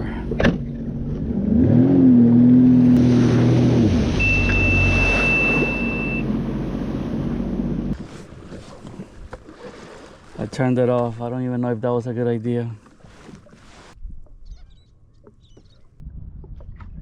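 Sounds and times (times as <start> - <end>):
water noise: 0.0 - 17.0
jet ski engine revving: 0.1 - 8.0
long high warning beep: 4.2 - 6.3.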